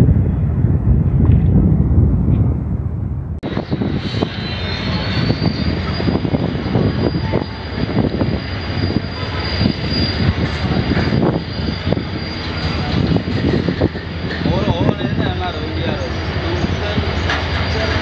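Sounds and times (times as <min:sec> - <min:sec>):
thin high squeal: 0:03.5 - 0:14.9
train wheels clattering over joints: 0:03.7 - 0:18.0.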